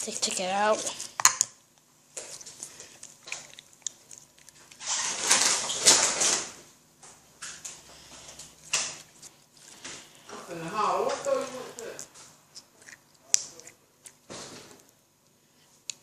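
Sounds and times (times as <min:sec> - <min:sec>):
putty squish: 0:11.8 - 0:16.0.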